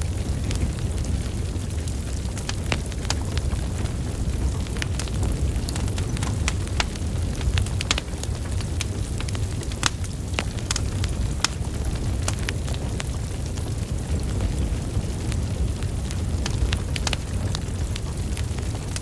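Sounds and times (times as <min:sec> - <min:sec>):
burning logs crackling: 0:00.0 - 0:19.0
flames rumbling: 0:00.0 - 0:19.0.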